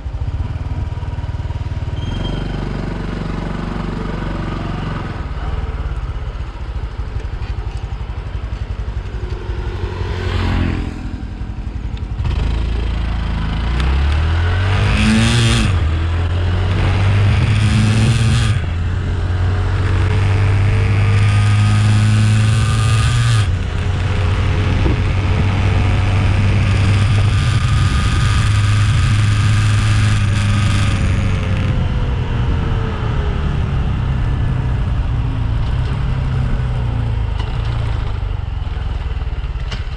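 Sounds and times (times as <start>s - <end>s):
motorcycle engine accelerating: 0.0s - 39.9s
wind rushing over microphone: 14.3s - 38.6s.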